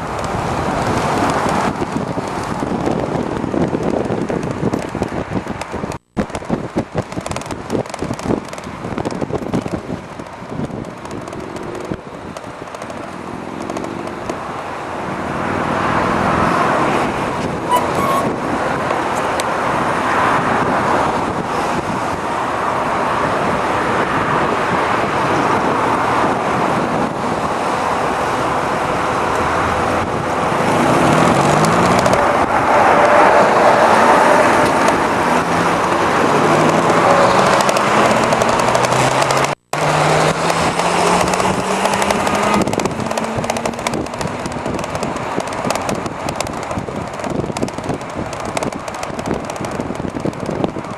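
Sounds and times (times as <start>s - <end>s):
road noise: 0.0s - 50.9s
wind rushing: 0.0s - 50.9s
rising pitched sweeps: 17.6s - 18.6s.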